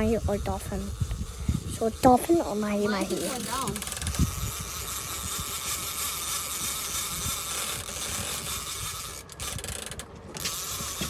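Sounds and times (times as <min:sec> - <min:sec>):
water and boat rumble: 0:00.0 - 0:05.9
fishing reel ratcheting: 0:00.0 - 0:11.0.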